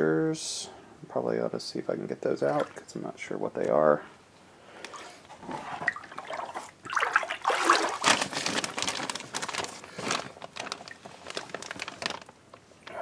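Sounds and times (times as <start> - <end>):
floodwater sloshing: 2.4 - 3.0, 5.5 - 11.0.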